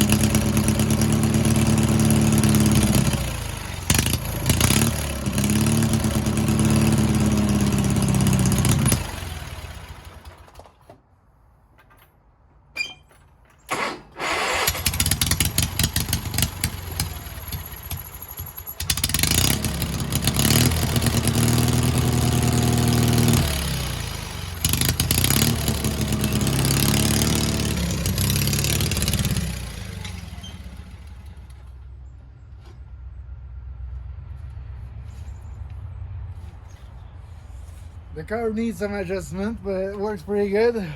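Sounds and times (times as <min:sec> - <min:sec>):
small gas engine running: 0:00.0 - 0:10.8, 0:13.7 - 0:31.7.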